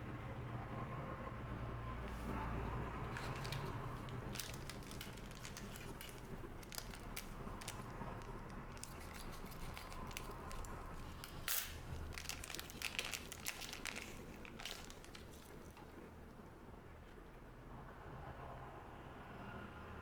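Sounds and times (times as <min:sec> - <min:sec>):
wrappers crinkling and tearing: 0:02.0 - 0:16.1
small crackles and clicks: 0:02.0 - 0:16.4.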